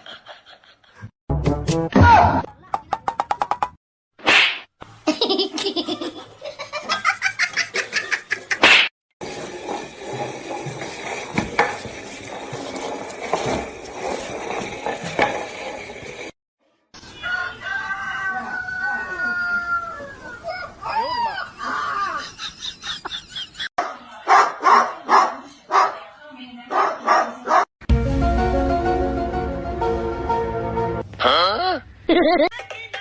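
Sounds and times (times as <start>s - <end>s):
laughter in quick pulses: 5.0s - 8.9s, 22.0s - 23.7s, 32.1s - 32.5s.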